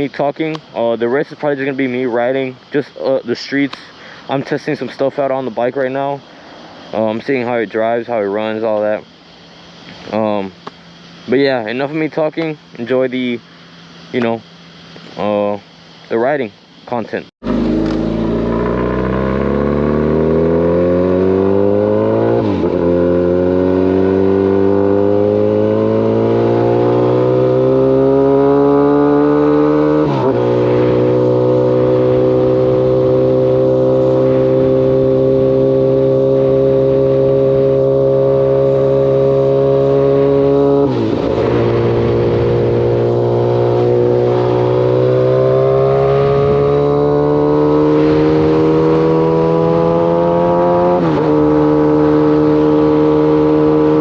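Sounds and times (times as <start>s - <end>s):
motorcycle engine accelerating: 17.4s - 54.0s.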